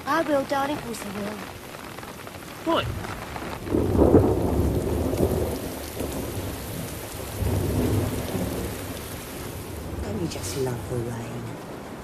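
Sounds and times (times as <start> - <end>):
steady rain: 0.0 - 12.0
thunder rumbling: 0.0 - 12.0.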